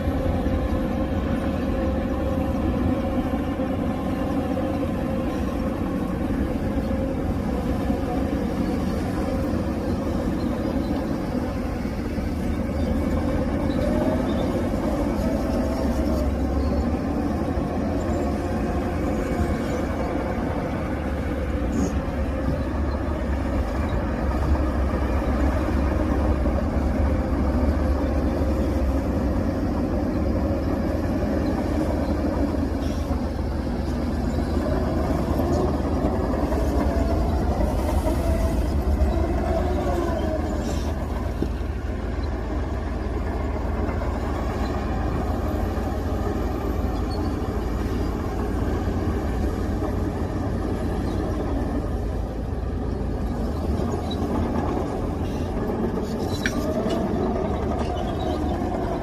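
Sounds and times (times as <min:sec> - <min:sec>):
heavy machinery diesel engines rumbling: 0:00.0 - 0:59.0.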